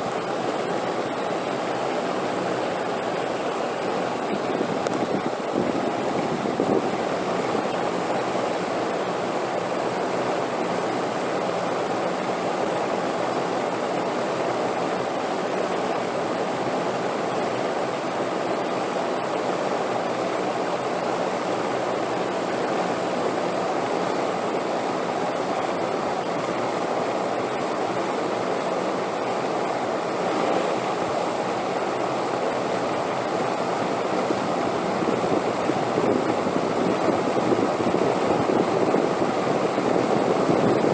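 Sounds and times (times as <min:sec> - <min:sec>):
wind blowing: 0:00.0 - 0:10.0, 0:33.4 - 0:40.9.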